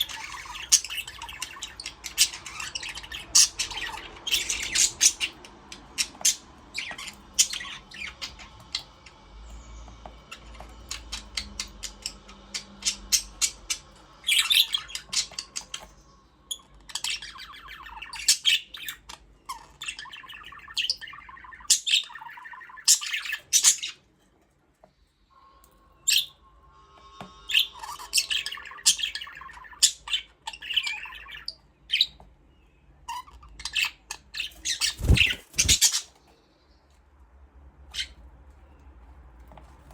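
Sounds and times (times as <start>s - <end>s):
budgerigars chattering: 0.0s - 8.6s, 33.1s - 36.2s.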